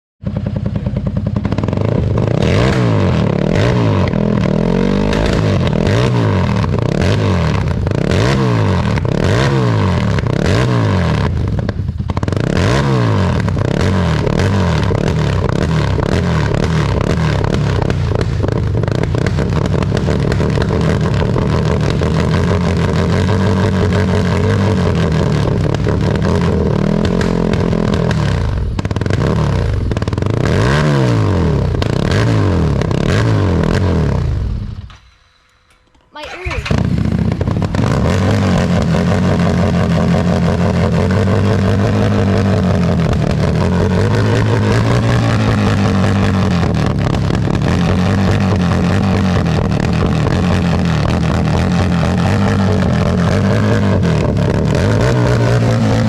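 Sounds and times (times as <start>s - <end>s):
exhaust popping and crackling: 0.2s - 56.0s
motorcycle engine revving: 0.2s - 56.0s.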